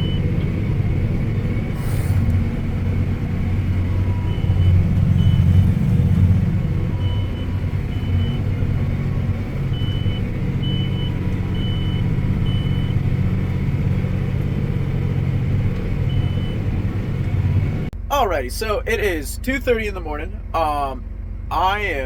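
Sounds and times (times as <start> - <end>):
tractor engine hum: 0.0 - 22.0
short electronic beeps: 4.2 - 5.6.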